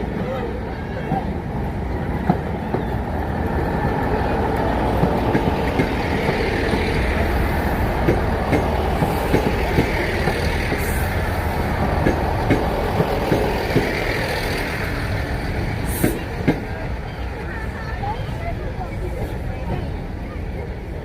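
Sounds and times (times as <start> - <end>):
train rumbling: 0.0 - 21.0.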